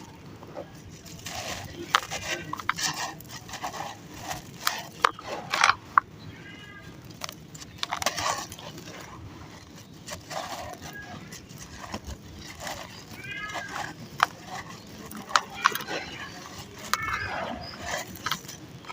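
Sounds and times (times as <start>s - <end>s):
cat meowing: 6.3s - 7.0s, 13.0s - 14.0s, 15.1s - 17.9s.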